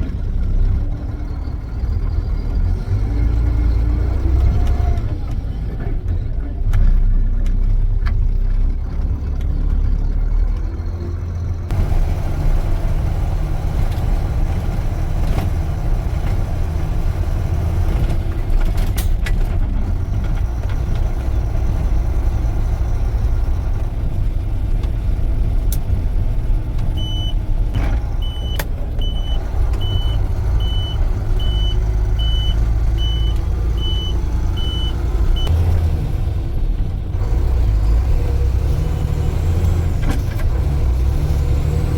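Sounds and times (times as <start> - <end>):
diesel truck engine running: 0.0 - 41.9
high repeating beep: 28.2 - 35.5.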